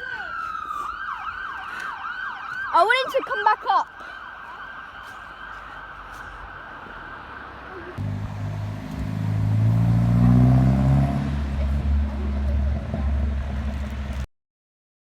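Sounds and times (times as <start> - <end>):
diesel truck engine accelerating: 8.0 - 14.3.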